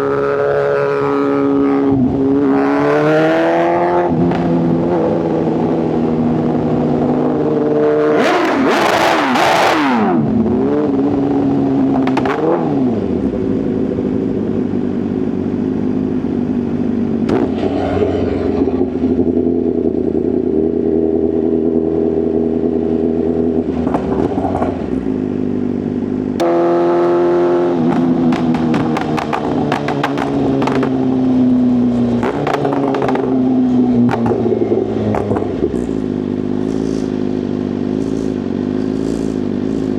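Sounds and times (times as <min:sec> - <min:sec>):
motorcycle engine at speed: 0:00.0 - 0:39.9
exhaust pops and crackles: 0:12.0 - 0:12.5, 0:23.7 - 0:25.2, 0:27.8 - 0:31.3, 0:32.2 - 0:37.1.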